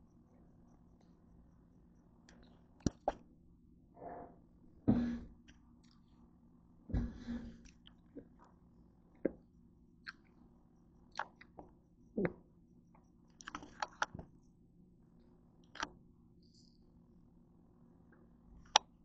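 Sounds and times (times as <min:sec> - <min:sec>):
chewing mouth clicks: 0:10.0 - 0:10.3, 0:11.1 - 0:11.6, 0:13.4 - 0:14.1.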